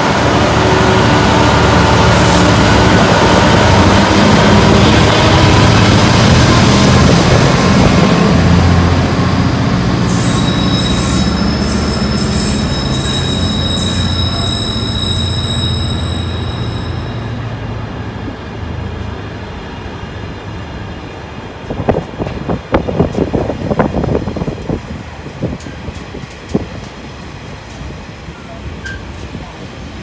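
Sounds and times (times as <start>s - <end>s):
freight train rumbling past: 0.0s - 30.0s
train wheels squealing: 10.0s - 17.6s, 28.8s - 29.2s.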